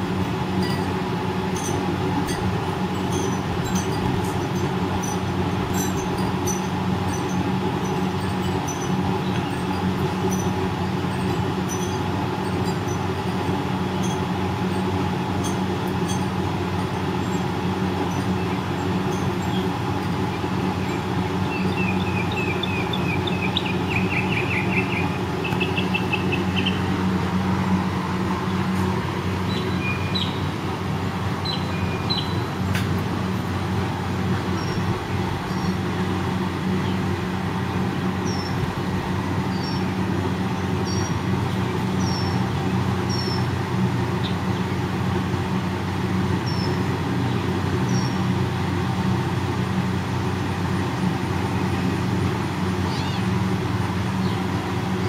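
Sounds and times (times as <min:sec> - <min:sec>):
steady low hum: 0:00.0 - 0:55.0
small birds chirping: 0:17.1 - 0:27.7, 0:29.4 - 0:30.6, 0:31.4 - 0:32.5, 0:34.5 - 0:35.9, 0:36.7 - 0:38.7, 0:39.4 - 0:43.6, 0:46.4 - 0:48.3, 0:52.8 - 0:53.4.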